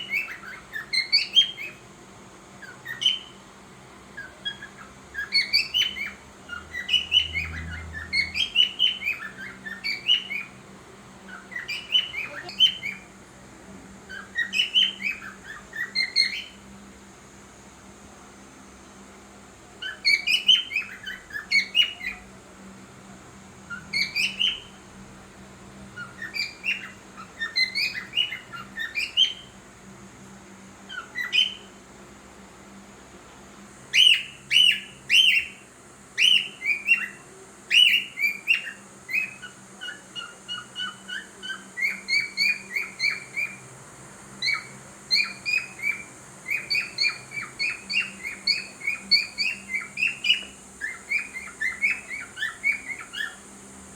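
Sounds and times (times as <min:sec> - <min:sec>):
cockatiel chirping and warbling: 0:00.0 - 0:01.8, 0:02.6 - 0:03.4, 0:04.2 - 0:10.6, 0:11.3 - 0:13.0, 0:14.1 - 0:16.6, 0:19.8 - 0:22.2, 0:23.7 - 0:24.8, 0:26.0 - 0:29.6, 0:30.9 - 0:31.7, 0:33.9 - 0:43.6, 0:44.4 - 0:53.4.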